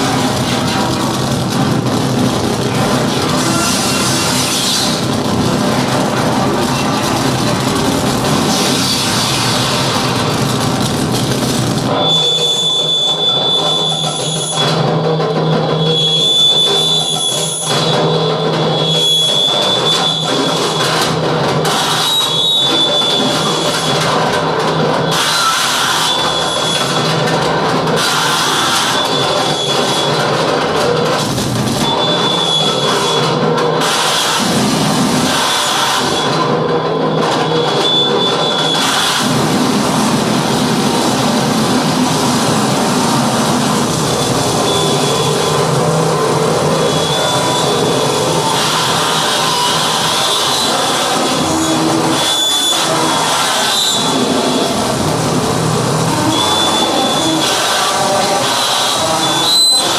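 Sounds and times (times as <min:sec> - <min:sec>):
harsh electronic noise music: 0:00.0 - 0:59.9
loud wall of noise: 0:00.0 - 0:59.9
high whistling tone: 0:11.9 - 0:14.7, 0:15.8 - 0:20.8, 0:44.2 - 0:45.9, 0:46.6 - 0:54.7, 0:56.1 - 0:59.9
thin high whistling tone: 0:56.2 - 0:59.9.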